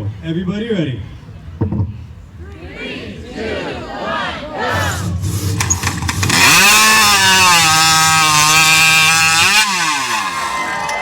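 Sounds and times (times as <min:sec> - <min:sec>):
chainsaw engine revving: 0:04.7 - 0:11.0.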